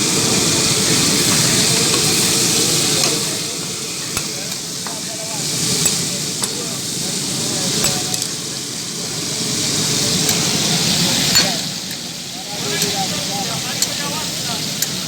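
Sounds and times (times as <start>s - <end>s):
liver sizzling on a griddle: 0.0s - 15.0s.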